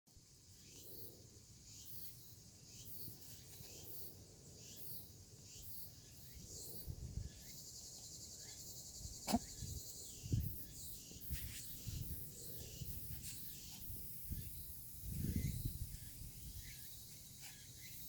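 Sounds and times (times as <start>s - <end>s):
insects chirping: 0.2s - 18.0s.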